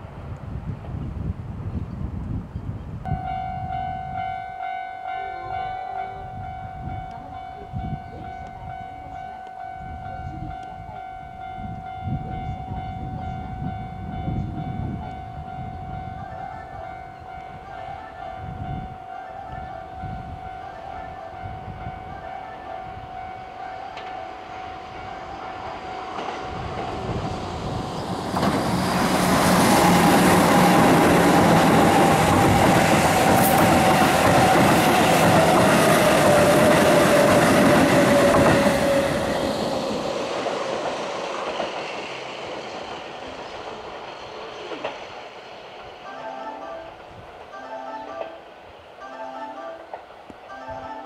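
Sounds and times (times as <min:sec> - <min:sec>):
train whine falling in pitch: 0:03.1 - 0:51.0
train wheels on rail: 0:21.3 - 0:46.3, 0:49.8 - 0:50.6.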